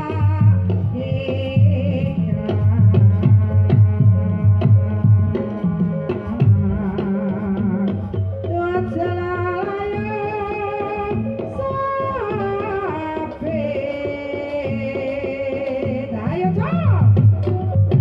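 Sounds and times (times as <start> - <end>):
drum strokes: 0.0 - 18.0
gamelan music: 16.8 - 18.0.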